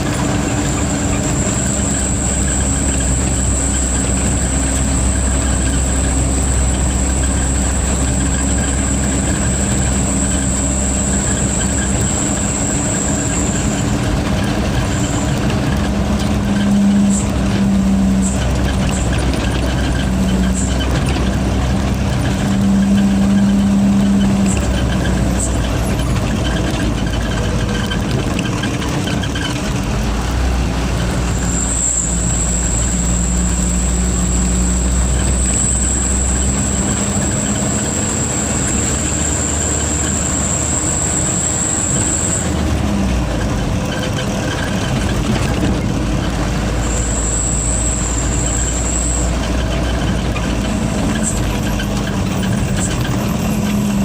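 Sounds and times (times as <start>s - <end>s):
turbocharger whistle: 0.0s - 28.0s, 31.2s - 43.1s, 43.9s - 54.0s
truck engine droning: 0.0s - 54.0s.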